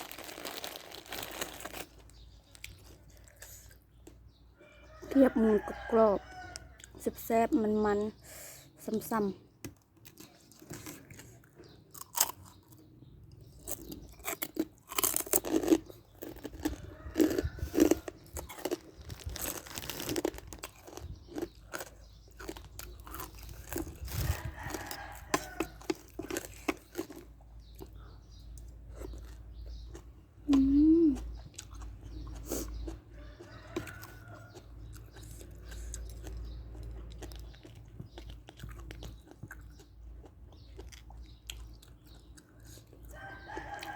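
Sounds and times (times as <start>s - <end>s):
crunchy chewing: 0.0s - 7.0s, 9.7s - 43.9s
person humming: 30.5s - 31.3s.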